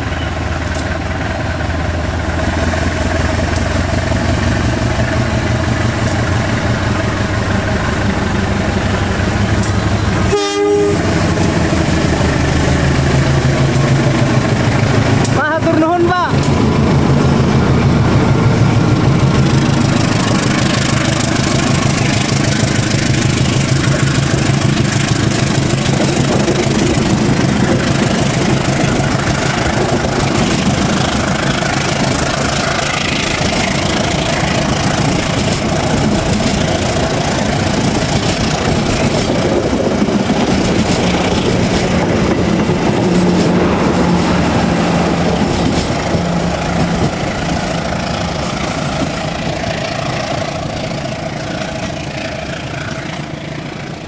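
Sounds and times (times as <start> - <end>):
coaches rolling on rails: 0.0 - 54.0
diesel locomotive engine under load: 0.0 - 54.0.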